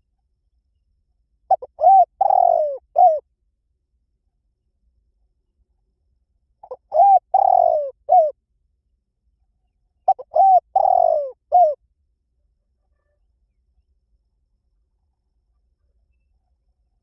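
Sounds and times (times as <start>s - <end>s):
dove cooing: 1.5s - 3.2s, 6.6s - 8.4s, 10.1s - 11.8s.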